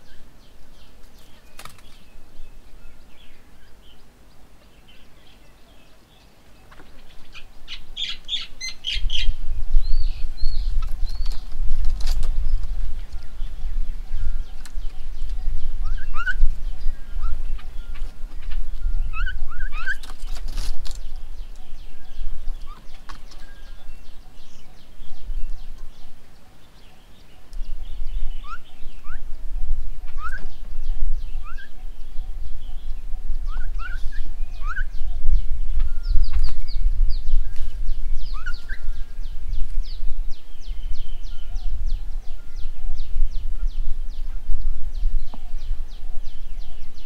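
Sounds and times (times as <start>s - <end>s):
birds chirping: 0.0s - 47.0s
steady low rumble: 0.0s - 47.0s.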